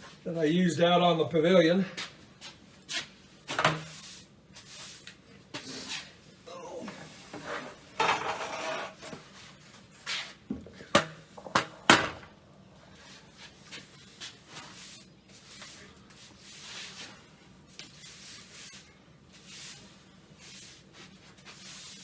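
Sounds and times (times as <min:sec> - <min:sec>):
scraping rustle: 0:07.0 - 0:10.4, 0:13.0 - 0:22.0
objects knocking when set down: 0:08.0 - 0:09.2, 0:10.5 - 0:12.3.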